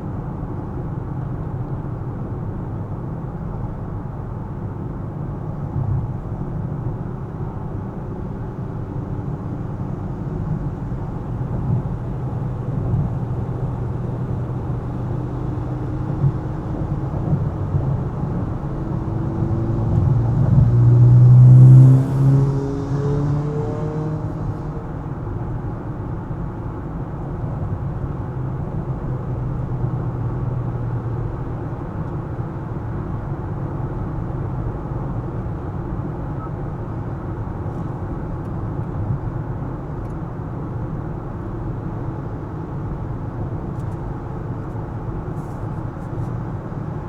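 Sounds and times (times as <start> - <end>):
car road and engine rumble: 0.0 - 47.0
engine accelerating through gears: 14.6 - 24.9.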